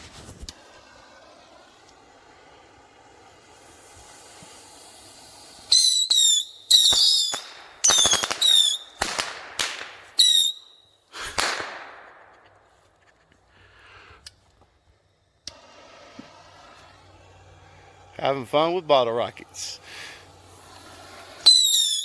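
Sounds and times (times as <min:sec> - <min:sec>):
rocket hiss: 0:00.0 - 0:22.0
loud sharp firework bangs: 0:00.6 - 0:13.0, 0:19.6 - 0:22.0
whistles dropping in pitch: 0:05.7 - 0:09.0, 0:10.2 - 0:11.0, 0:21.4 - 0:22.0.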